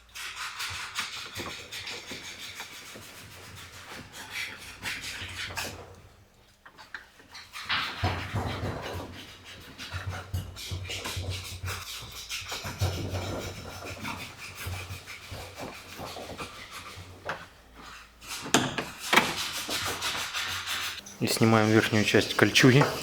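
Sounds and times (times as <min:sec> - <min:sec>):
hard plastic scraping and rubbing: 0:06.7 - 0:23.0.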